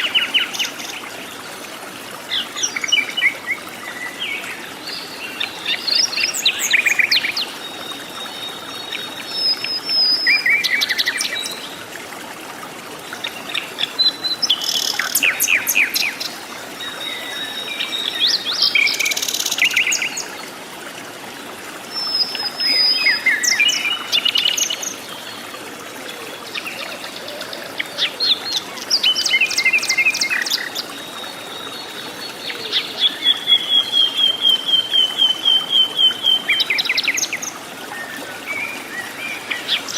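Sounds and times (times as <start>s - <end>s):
forest birds singing: 13.2s - 20.4s, 21.9s - 25.5s, 26.1s - 39.9s.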